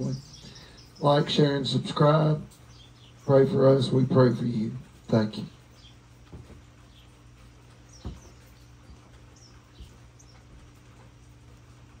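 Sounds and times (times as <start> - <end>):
faint bird chirps: 0.0 - 1.4, 6.7 - 10.6
steady low hum: 0.0 - 12.0
soft thumps: 6.3 - 6.7, 8.0 - 8.4.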